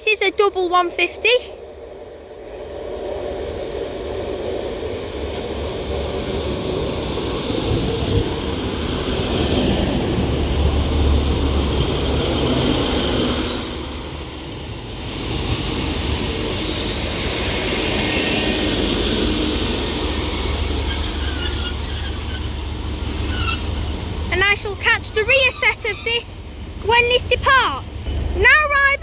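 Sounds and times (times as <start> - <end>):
train wheels and diesel rumble: 0.0 - 29.0
high brake squeal: 2.6 - 4.4, 11.9 - 14.3, 16.2 - 26.4.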